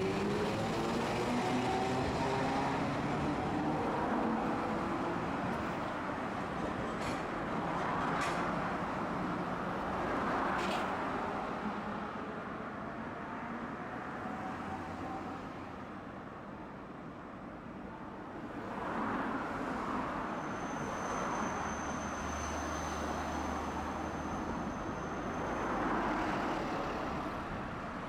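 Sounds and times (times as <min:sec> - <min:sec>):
streetcar rumbling: 0:00.0 - 0:12.0.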